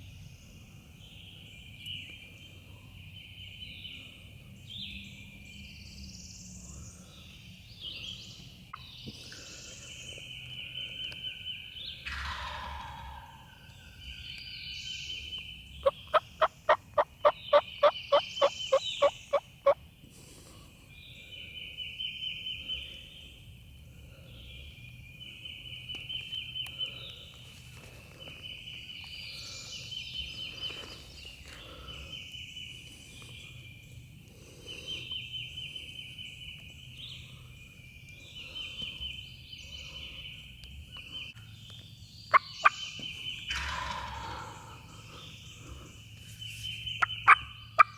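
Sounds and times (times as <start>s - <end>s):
high bird trill: 15.8s - 19.8s
wild turkey yelping: 15.8s - 19.8s, 47.0s - 47.9s.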